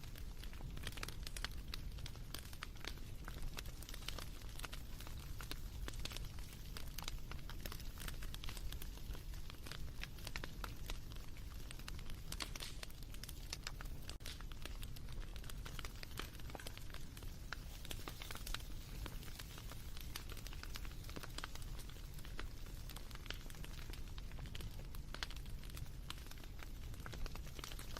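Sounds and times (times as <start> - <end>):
bonfire crackling: 0.0 - 27.9
low rumble of flames: 0.0 - 27.9.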